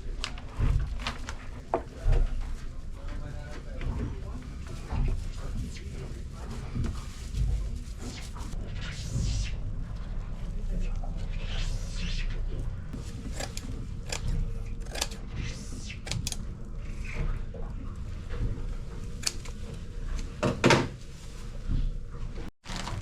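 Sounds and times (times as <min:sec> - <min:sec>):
low steady hum: 0:00.0 - 0:23.0
clicks and knocks of objects handled: 0:12.9 - 0:15.3, 0:15.9 - 0:16.5, 0:17.2 - 0:21.0.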